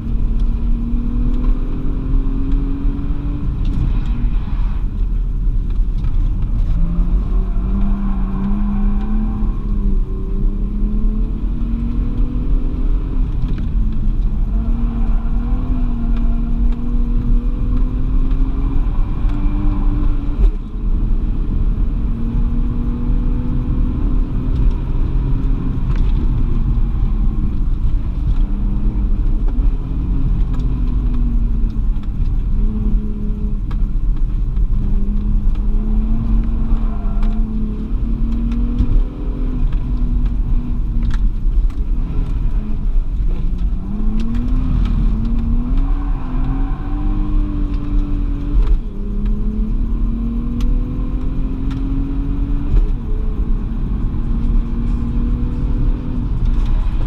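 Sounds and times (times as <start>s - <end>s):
car engine revving: 0.0s - 57.0s
heavy low rumble: 0.0s - 57.0s.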